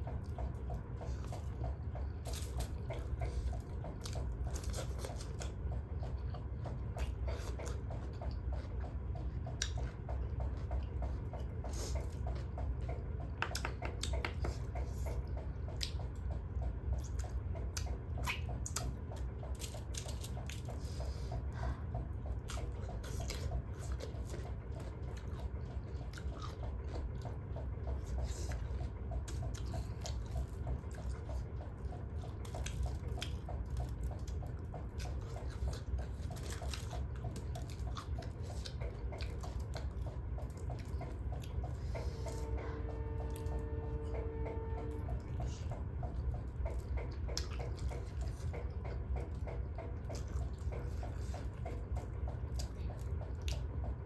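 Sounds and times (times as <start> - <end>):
steady low hum: 0.0 - 54.0
person biting and chewing food: 2.2 - 8.8, 17.0 - 42.4
wet crunchy mouth clicks: 13.3 - 15.2.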